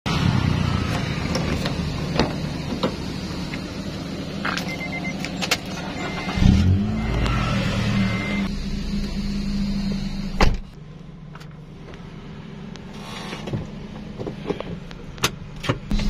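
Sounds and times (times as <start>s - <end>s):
car engine starting and idling: 0.1s - 16.0s
short electronic chime beeps: 4.6s - 7.2s.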